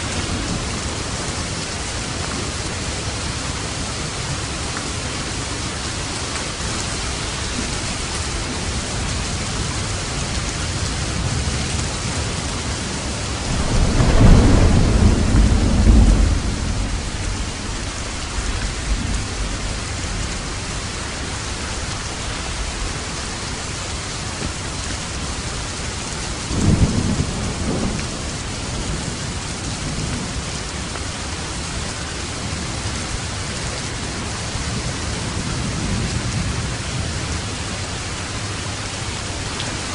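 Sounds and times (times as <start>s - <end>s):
heavy rain on a roof: 0.0s - 39.9s
thunder rumbling: 6.9s - 25.6s, 26.3s - 31.6s.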